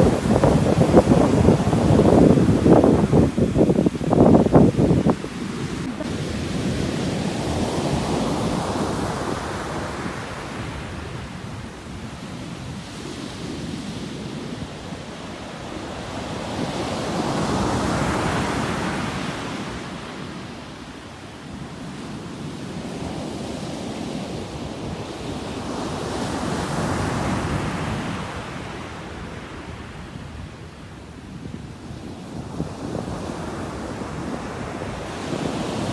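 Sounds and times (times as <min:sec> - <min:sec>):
sea waves breaking: 0:04.2 - 0:11.0.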